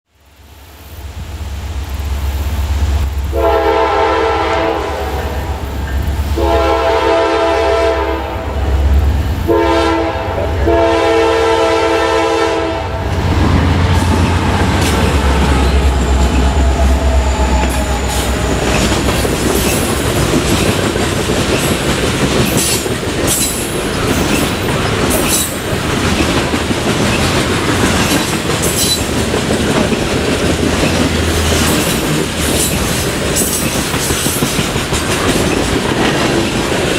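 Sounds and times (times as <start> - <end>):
locomotive engine rumble: 1.0 - 36.9
train air horn: 3.3 - 13.2, 15.1 - 19.1
wheels clacking over rail joints: 13.1 - 36.9
wheels squealing: 13.5 - 20.8.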